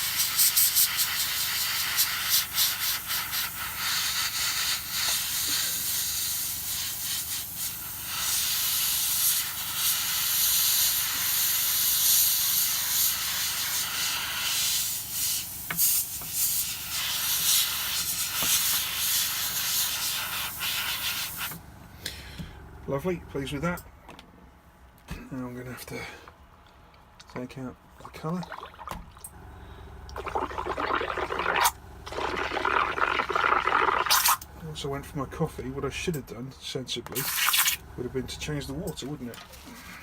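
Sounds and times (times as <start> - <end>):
airbrush spraying: 0.0 - 21.6, 37.2 - 37.8.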